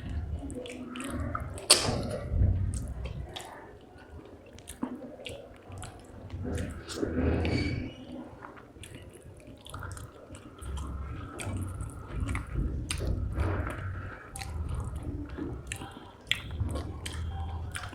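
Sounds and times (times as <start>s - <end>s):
person chewing food: 0.0s - 17.9s.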